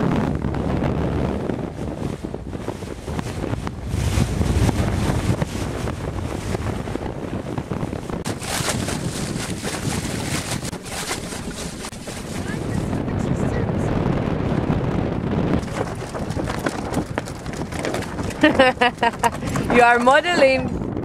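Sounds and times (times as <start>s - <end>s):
wind buffeting microphone: 0.0s - 21.0s
water rushing: 8.1s - 13.8s, 15.6s - 20.6s.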